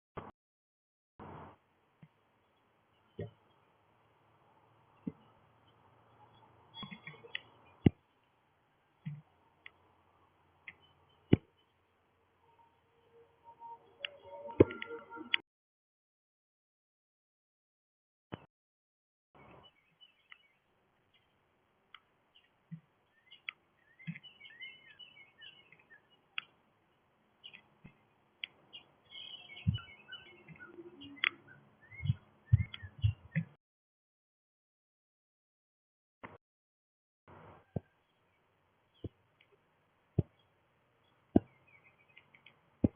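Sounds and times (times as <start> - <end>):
songbirds chirping: 1.2 - 15.4, 19.4 - 33.6, 37.3 - 42.9
soft low thumps: 29.6 - 29.9, 32.0 - 33.6.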